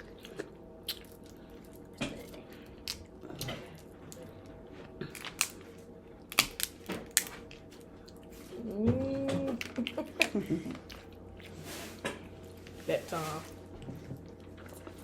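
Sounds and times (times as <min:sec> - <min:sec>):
shellfish shells cracking by hand: 0:05.1 - 0:05.6, 0:06.2 - 0:07.5.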